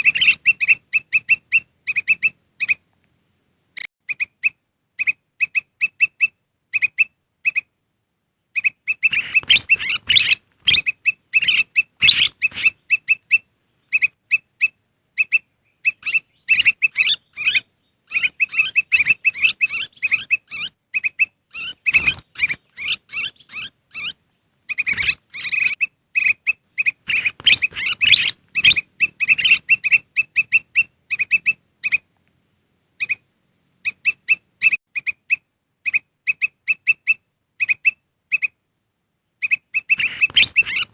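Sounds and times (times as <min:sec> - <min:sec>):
bulbul chirping: 0:00.0 - 0:02.8, 0:08.6 - 0:32.1, 0:39.4 - 0:40.9.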